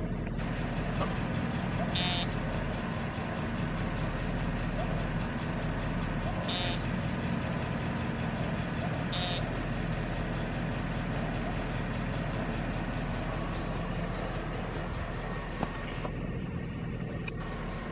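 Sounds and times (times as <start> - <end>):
low engine hum: 0.0 - 17.9
bird buzzy nasal call: 1.9 - 2.4, 6.4 - 6.9, 9.1 - 9.6.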